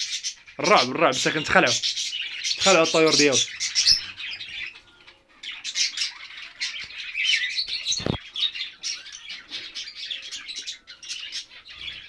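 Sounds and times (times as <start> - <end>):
cage birds chirping and squawking: 0.0 - 12.0.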